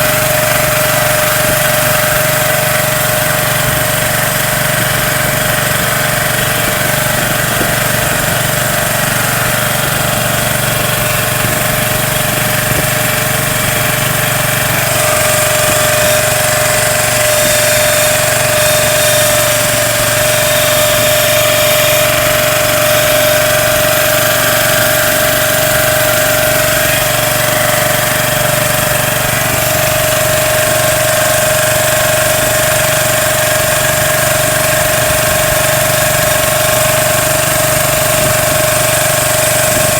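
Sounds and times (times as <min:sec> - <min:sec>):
boat engine running: 0:00.0 - 0:39.9
steady whine: 0:00.0 - 0:39.9.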